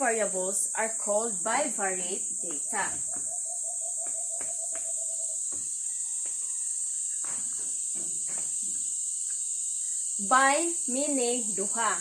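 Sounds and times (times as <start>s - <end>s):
faint background sounds: 0.0s - 12.0s
high-pitched hiss: 4.7s - 12.0s.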